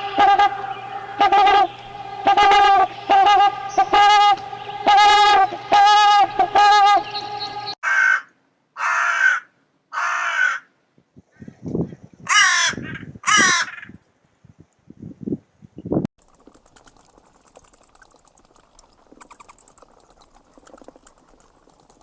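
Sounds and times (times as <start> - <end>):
wavering animal call: 0.0 - 7.8
harsh raspy animal calls: 16.4 - 22.0.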